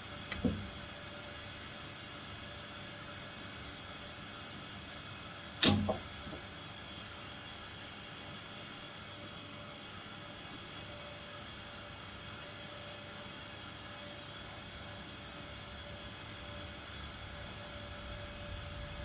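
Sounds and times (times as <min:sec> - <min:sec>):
sharp knocks: 0:05.6 - 0:06.5.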